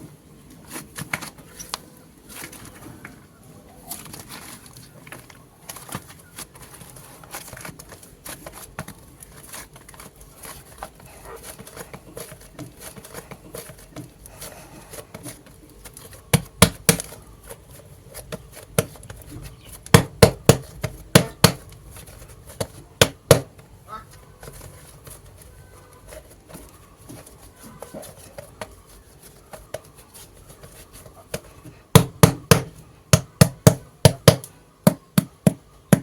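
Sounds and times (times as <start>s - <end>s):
sharp slaps on clay: 16.3s - 17.2s, 19.8s - 21.6s, 22.6s - 23.6s, 31.3s - 36.0s.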